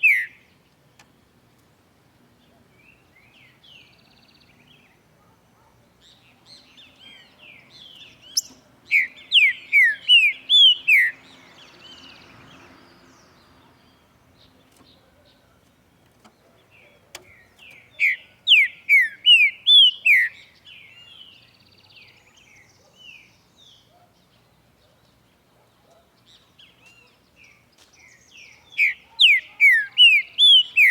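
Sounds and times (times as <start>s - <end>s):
bird singing whistled notes: 0.0s - 0.5s, 6.1s - 12.3s, 16.8s - 23.9s, 28.0s - 30.9s.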